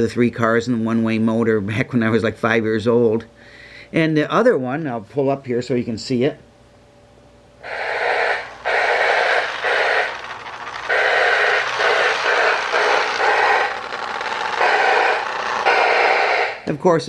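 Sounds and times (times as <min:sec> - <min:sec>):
toy train whistle blasts: 0:07.6 - 0:10.2, 0:10.9 - 0:13.8, 0:14.6 - 0:16.6.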